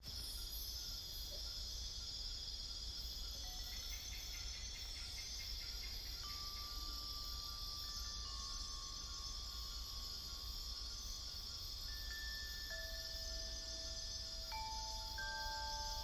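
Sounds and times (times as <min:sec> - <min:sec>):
insects buzzing and trilling: 0:00.0 - 0:16.0
clear steady tone: 0:12.1 - 0:16.0.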